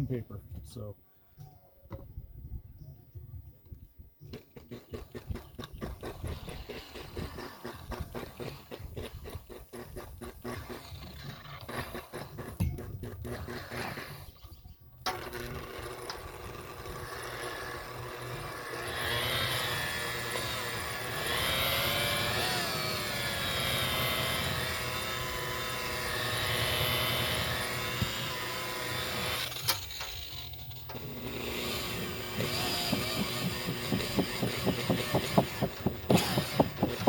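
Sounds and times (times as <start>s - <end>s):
electric buffer motor whine: 15.1s - 37.0s.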